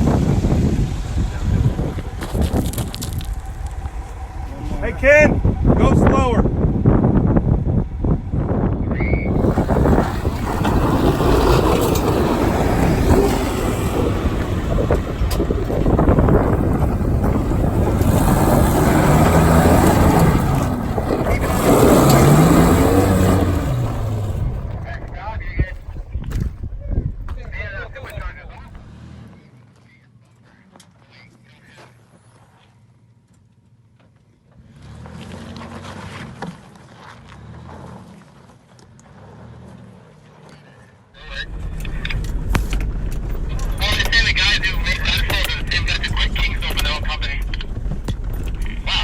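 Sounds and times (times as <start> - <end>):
truck engine revving under load: 0.0 - 25.4, 41.2 - 49.0
wind buffeting microphone: 0.0 - 28.9, 41.2 - 49.0.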